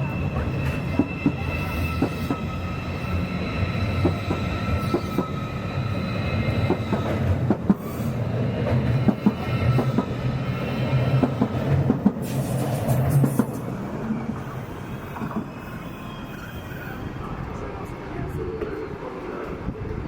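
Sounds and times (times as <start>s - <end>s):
train wheels squealing: 0.0s - 17.6s.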